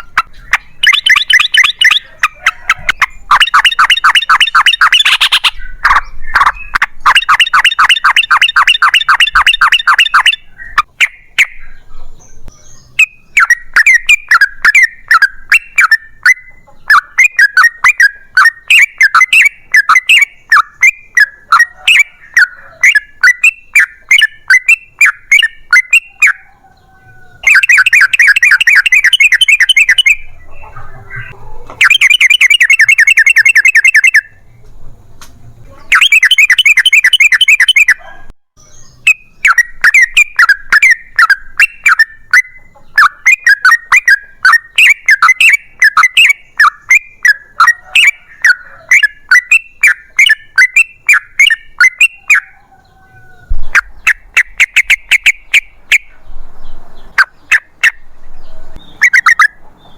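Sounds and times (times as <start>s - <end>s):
bird singing rolling song: 0.0s - 59.9s.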